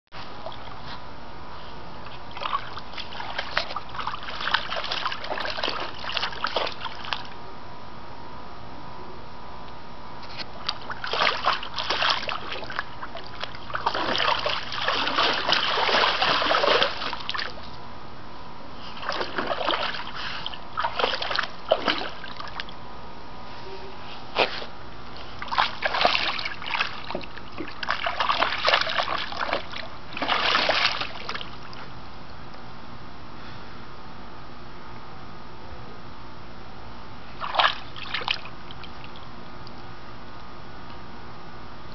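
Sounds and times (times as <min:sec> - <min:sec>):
dog splashing in water: 0:02.3 - 0:07.3, 0:10.7 - 0:17.6, 0:19.0 - 0:22.7, 0:25.4 - 0:31.6, 0:37.4 - 0:38.5.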